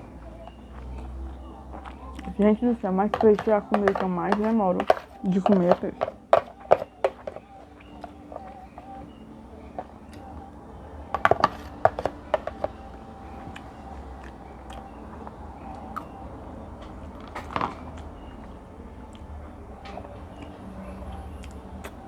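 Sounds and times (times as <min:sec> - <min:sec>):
cutlery clinking on plate: 0:03.1 - 0:09.1, 0:11.1 - 0:12.8.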